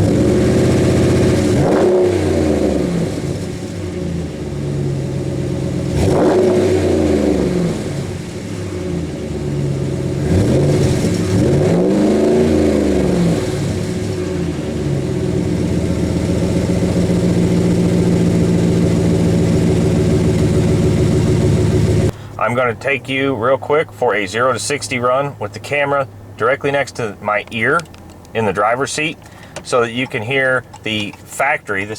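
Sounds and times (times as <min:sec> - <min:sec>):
truck engine idling and revving: 0:00.0 - 0:31.9.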